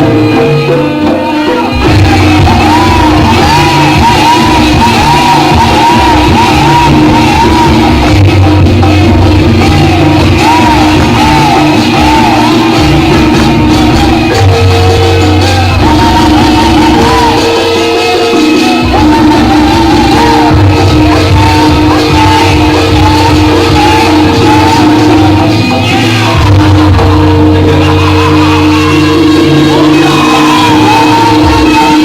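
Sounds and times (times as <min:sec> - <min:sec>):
drum beat: 0:00.0 - 0:32.0
gamelan music: 0:00.0 - 0:32.0.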